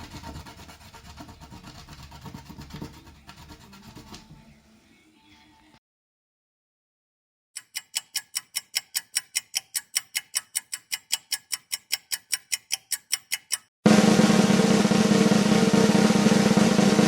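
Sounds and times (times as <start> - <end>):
rapid even ticking: 7.6 - 13.7.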